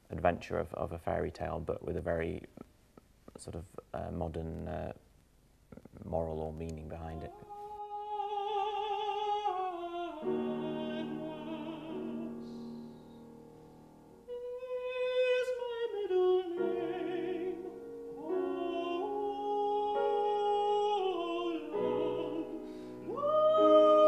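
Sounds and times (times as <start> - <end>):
operatic singing with vibrato: 7.1 - 12.9, 14.2 - 24.0
piano chords: 7.2 - 24.0.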